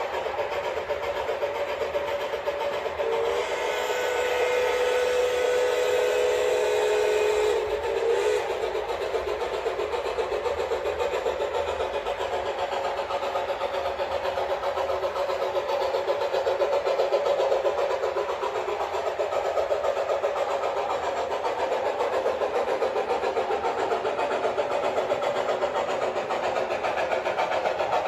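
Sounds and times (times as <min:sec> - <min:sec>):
model diesel engine sound: 0:00.0 - 0:28.0
model train horn: 0:03.0 - 0:08.7.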